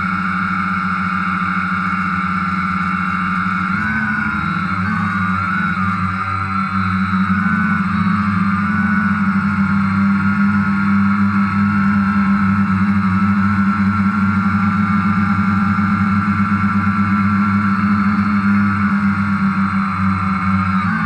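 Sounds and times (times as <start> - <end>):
drone propellers humming: 0.0 - 21.0.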